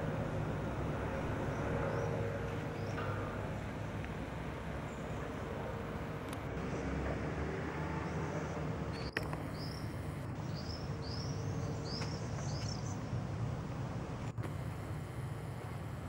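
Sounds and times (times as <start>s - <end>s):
low rumble: 0.0s - 7.4s
bird chirping: 1.3s - 3.2s, 8.0s - 13.1s.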